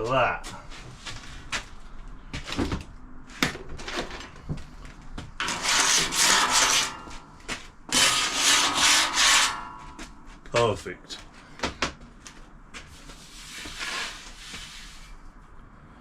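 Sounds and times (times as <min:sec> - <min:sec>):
long rubbing strokes: 0:05.4 - 0:10.3.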